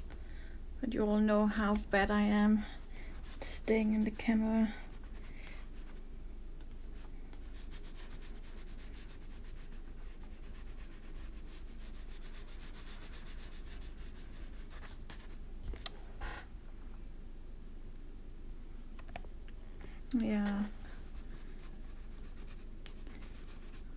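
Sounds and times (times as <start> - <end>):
crayon scratching on paper: 7.4 - 15.3, 20.6 - 23.9.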